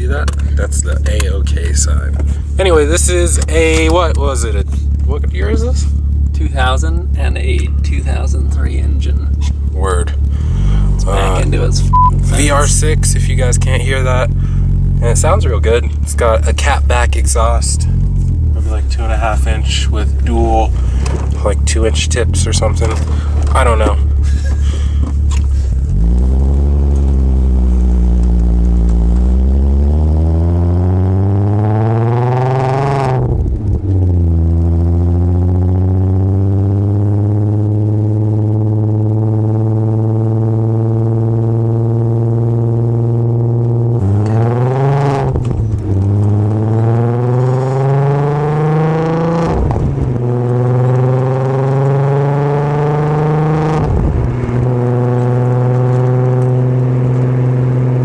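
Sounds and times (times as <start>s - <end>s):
car exhaust note accelerating: 0.0s - 58.0s.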